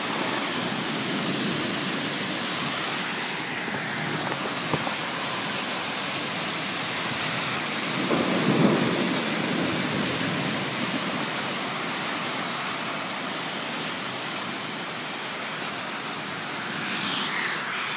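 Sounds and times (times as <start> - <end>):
heavy rain: 0.0 - 17.9
thunder rolling: 7.8 - 12.1.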